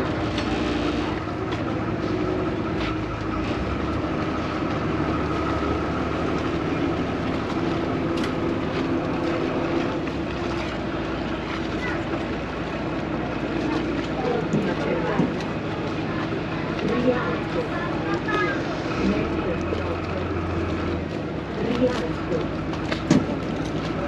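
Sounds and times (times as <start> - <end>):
boat engine humming: 0.0 - 24.0
water noise: 0.0 - 24.0.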